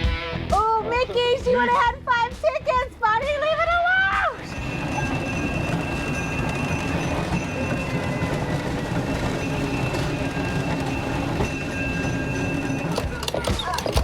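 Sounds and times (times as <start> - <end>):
low mechanical rumble: 4.4 - 13.2.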